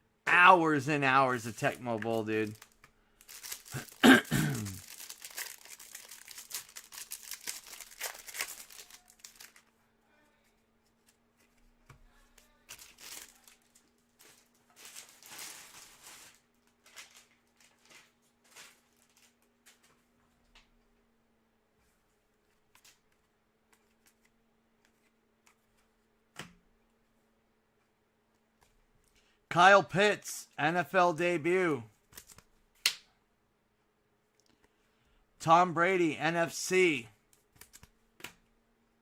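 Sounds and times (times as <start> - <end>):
packaging crinkling: 1.5 - 9.7, 12.4 - 19.9
person coughing: 3.7 - 4.8.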